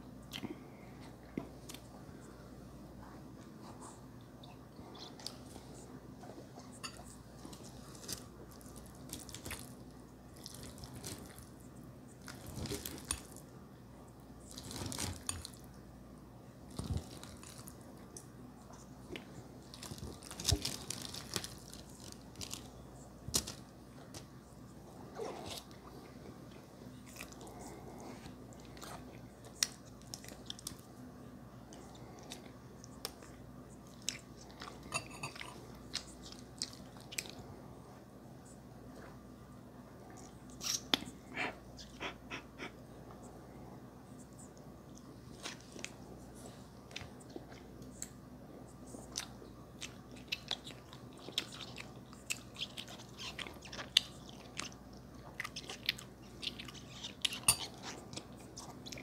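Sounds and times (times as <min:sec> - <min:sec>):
chewing and biting food: 0:49.0 - 0:59.0.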